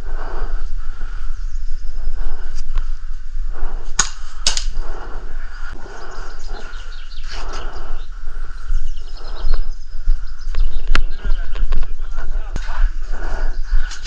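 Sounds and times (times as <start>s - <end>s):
low rumbling noise: 0.0s - 14.0s
sharp clicks: 3.9s - 4.9s.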